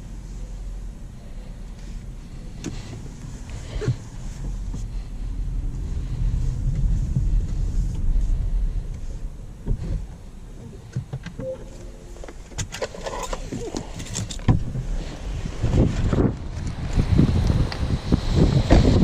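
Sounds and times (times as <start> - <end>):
road and tyre rumble: 0.0 - 19.0
short beep: 11.4 - 12.6.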